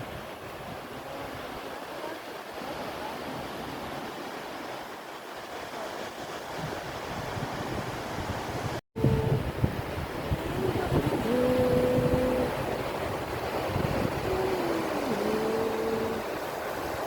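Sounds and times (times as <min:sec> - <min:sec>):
ocean surf breaking on beach: 0:00.0 - 0:17.0
wind buffeting microphone: 0:06.3 - 0:17.0.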